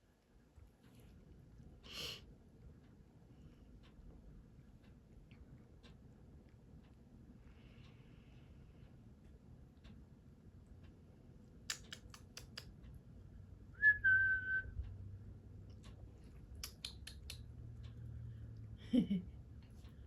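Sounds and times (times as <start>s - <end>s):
sharp clicks: 11.6s - 13.0s, 15.8s - 18.0s.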